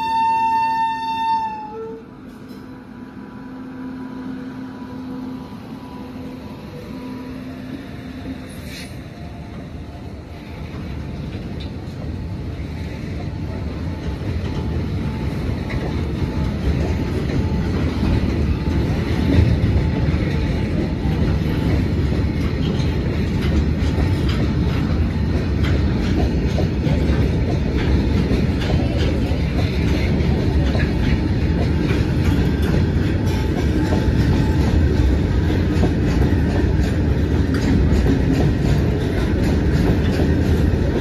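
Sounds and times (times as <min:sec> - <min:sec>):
electric locomotive hum: 0:00.0 - 0:41.0
wagon wheels clattering on rails: 0:14.0 - 0:41.0.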